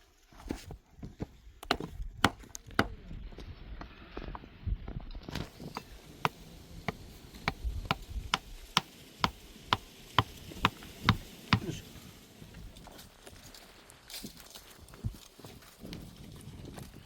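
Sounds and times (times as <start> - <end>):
sharp evenly spaced knocks: 5.5 - 11.8.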